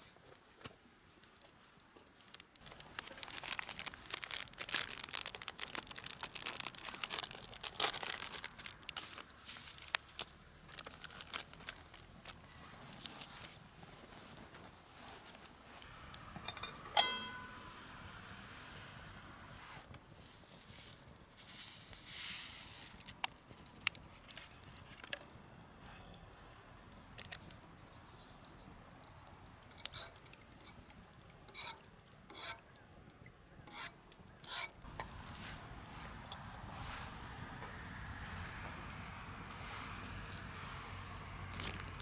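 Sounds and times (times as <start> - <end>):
cookware clicks and knocks: 16.4 - 17.6
metallic clink: 16.4 - 17.8.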